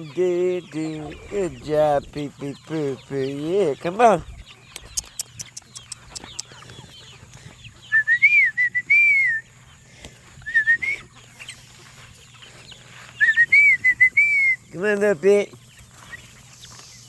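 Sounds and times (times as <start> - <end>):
chickens clucking: 0.0 - 17.0
person whistling: 7.9 - 9.4, 10.5 - 11.0, 13.2 - 14.6.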